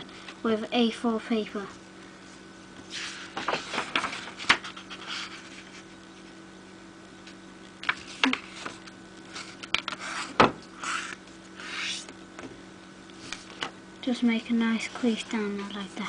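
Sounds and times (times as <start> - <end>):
faint steady hum: 0.0 - 16.0
paper rustling and crackling: 2.8 - 5.9.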